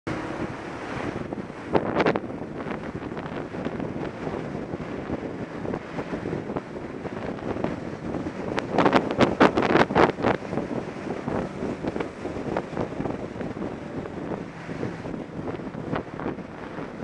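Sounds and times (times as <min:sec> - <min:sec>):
wind buffeting microphone: 0:00.1 - 0:17.0.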